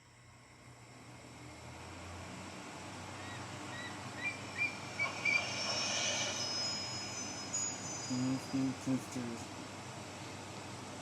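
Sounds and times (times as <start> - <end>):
outdoor ambience: 0.0 - 11.0
short rising bird chirps: 3.2 - 8.4.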